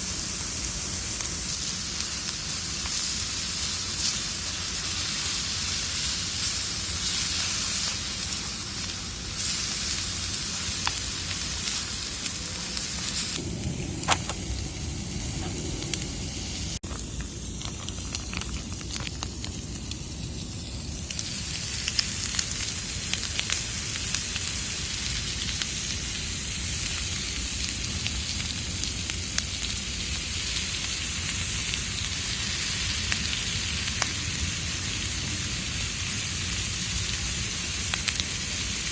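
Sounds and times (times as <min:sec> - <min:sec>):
food sizzling in frying pan: 0:00.0 - 0:38.9
campfire crackling and popping: 0:10.3 - 0:38.9.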